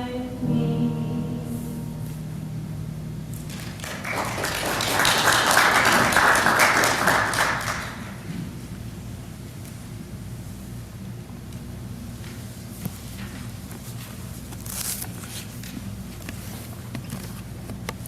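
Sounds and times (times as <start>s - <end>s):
congregation applauding: 3.4s - 8.3s.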